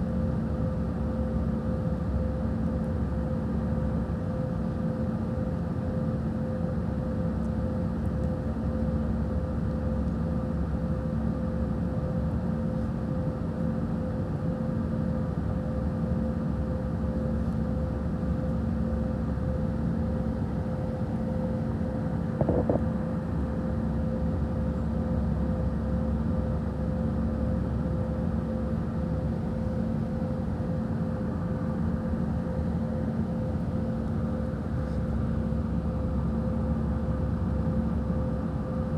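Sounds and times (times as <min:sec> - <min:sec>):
aircraft cabin engine rumble: 0:00.0 - 0:38.9
brief knock: 0:22.4 - 0:22.8.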